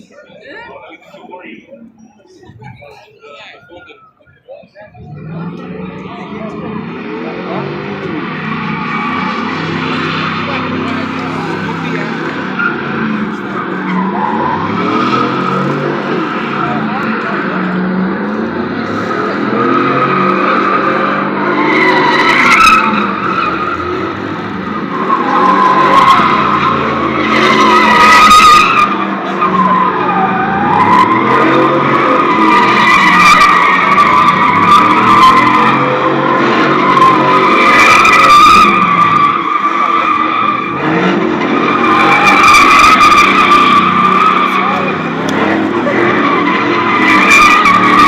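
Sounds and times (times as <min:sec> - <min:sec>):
engine revving: 0:05.0 - 0:48.0
tyres squealing: 0:07.7 - 0:48.0.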